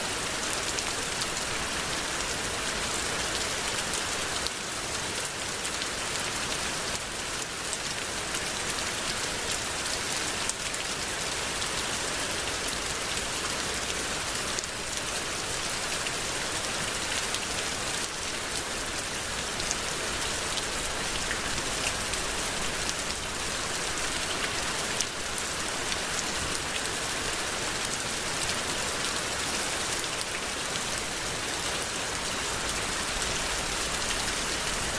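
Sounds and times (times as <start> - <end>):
steady rain hiss: 0.0 - 34.9.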